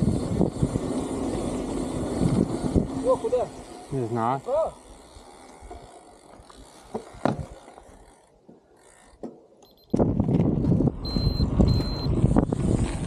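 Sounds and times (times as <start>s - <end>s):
wind buffeting microphone: 0.0s - 3.3s, 9.9s - 13.0s
high-pitched electronic beeps: 11.0s - 12.1s.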